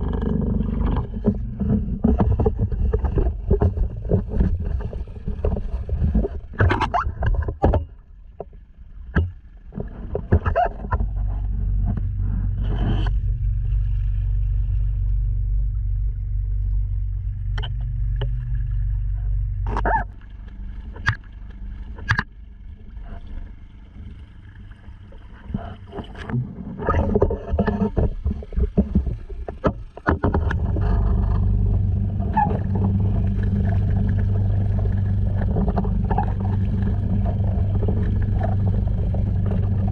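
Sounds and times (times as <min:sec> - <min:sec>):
outboard motor humming: 0:00.0 - 0:39.9
water splashing: 0:16.4 - 0:39.9.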